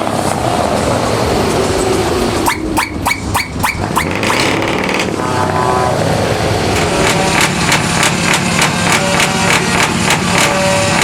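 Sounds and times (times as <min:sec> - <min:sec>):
truck engines rumbling: 0:00.0 - 0:11.0
steady pitched tone: 0:02.4 - 0:07.4
sharp cracks: 0:06.7 - 0:10.6.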